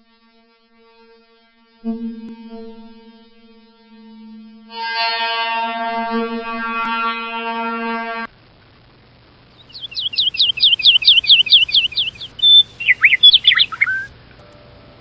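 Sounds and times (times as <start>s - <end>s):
held musical note: 1.8s - 8.3s
songbird singing: 9.5s - 14.1s.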